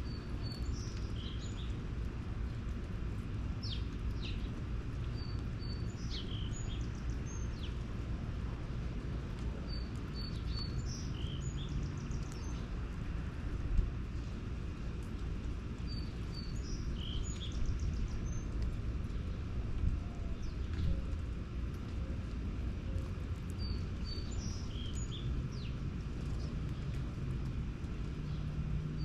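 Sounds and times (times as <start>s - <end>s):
small birds chirping: 0.0s - 1.9s, 3.6s - 7.9s, 9.4s - 12.9s, 15.8s - 19.4s, 20.2s - 21.2s, 22.1s - 29.0s
low background rumble: 0.0s - 29.0s.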